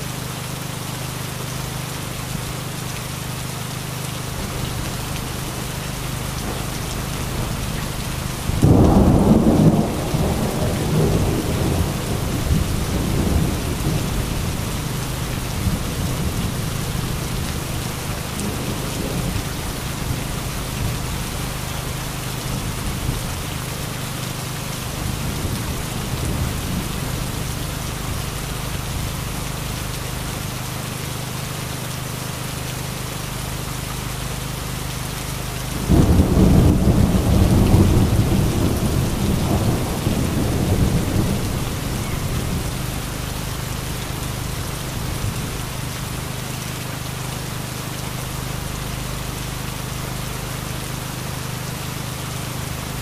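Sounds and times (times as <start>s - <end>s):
heavy rain: 0.0s - 53.0s
thunder rumbling: 6.4s - 17.7s, 35.8s - 43.6s.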